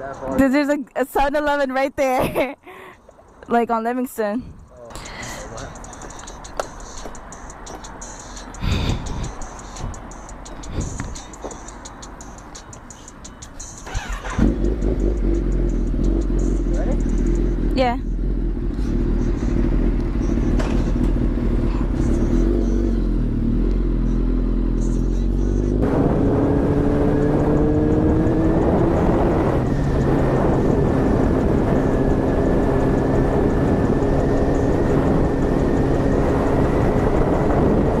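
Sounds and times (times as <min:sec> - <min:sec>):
motorcycle engine running: 0:13.8 - 0:38.0
wind rush: 0:25.8 - 0:38.0.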